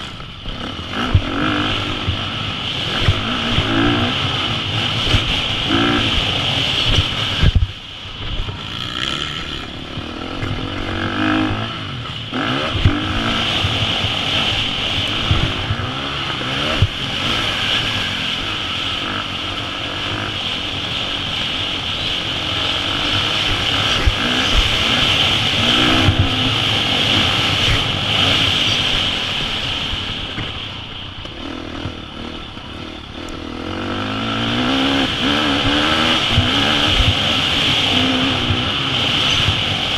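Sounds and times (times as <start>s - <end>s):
dirt bike engine revving: 0.0s - 30.6s, 31.2s - 39.9s
rushing wind noise: 0.0s - 39.9s.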